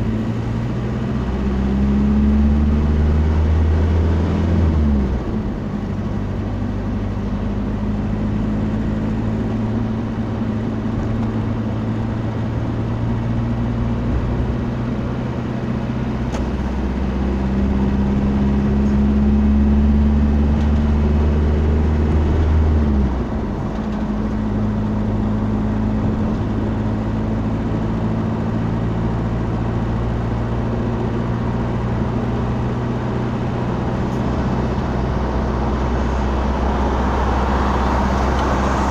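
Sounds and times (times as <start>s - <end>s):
road noise: 0.0s - 38.9s
vehicle engine hum: 0.0s - 38.9s.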